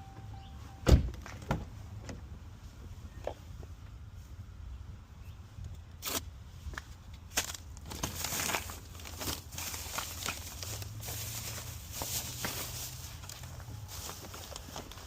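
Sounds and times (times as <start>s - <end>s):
crinkling and rustling handling: 6.0s - 15.0s.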